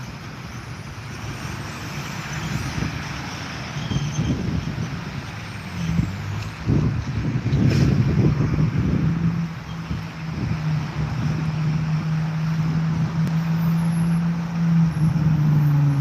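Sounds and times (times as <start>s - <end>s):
wind buffeting microphone: 3.8s - 13.4s.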